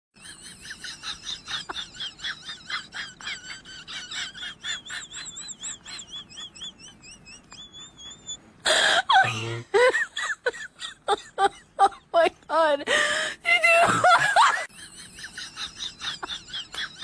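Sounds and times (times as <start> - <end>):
small birds chirping: 4.7 - 8.4.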